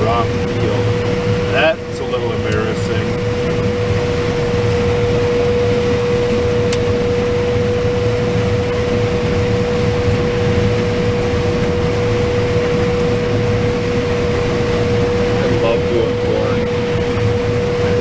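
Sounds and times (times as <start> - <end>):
combine harvester low drone: 0.0 - 18.0
constant high whine: 0.0 - 18.0.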